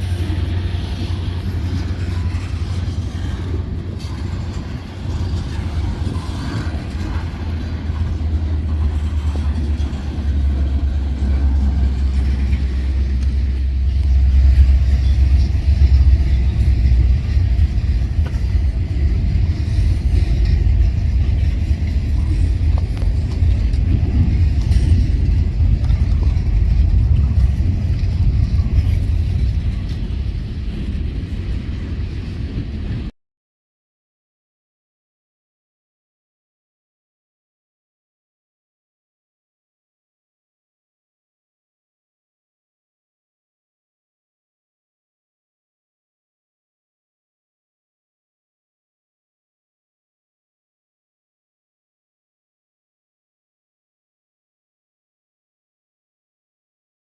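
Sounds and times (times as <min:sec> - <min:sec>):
freight train rumbling: 0:00.0 - 0:33.1.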